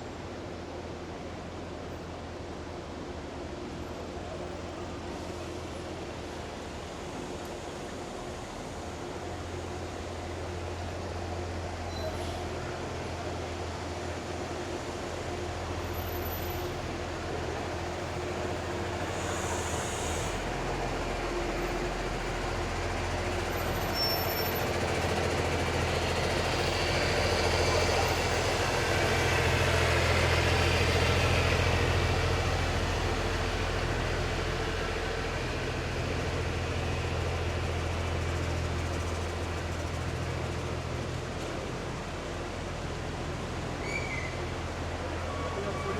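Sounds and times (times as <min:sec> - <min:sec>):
even hiss: 0:18.9 - 0:20.6.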